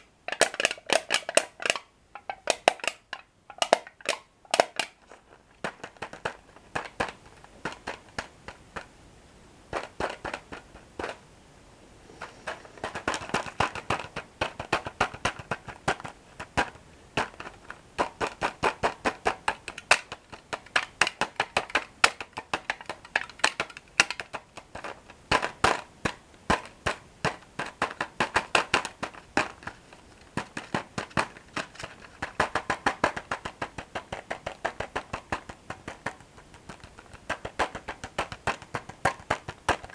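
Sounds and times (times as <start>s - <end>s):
mouth clicks: 12.0s - 14.5s.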